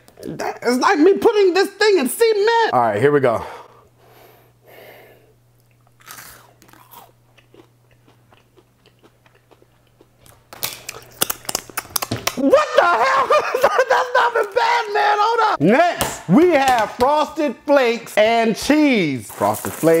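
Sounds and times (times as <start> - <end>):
crunchy snack being chewed: 5.6 - 12.4.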